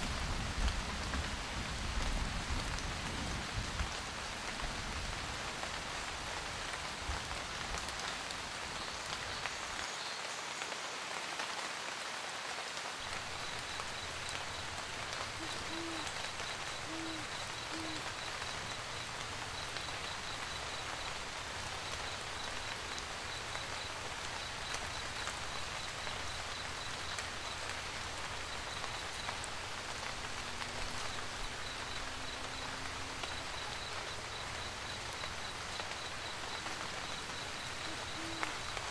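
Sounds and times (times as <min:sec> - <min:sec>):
rain pattering on a roof: 0:00.0 - 0:38.9
owl hooting: 0:13.4 - 0:21.1, 0:36.6 - 0:38.8.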